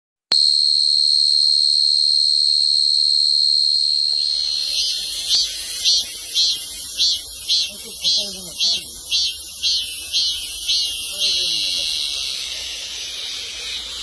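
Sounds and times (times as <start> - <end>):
insect trilling and chirping: 3.7 - 14.0.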